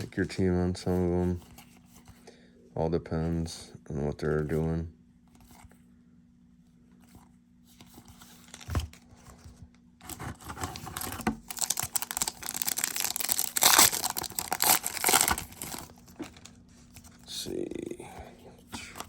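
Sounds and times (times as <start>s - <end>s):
foil wrapper tearing and crinkling: 10.5s - 16.0s.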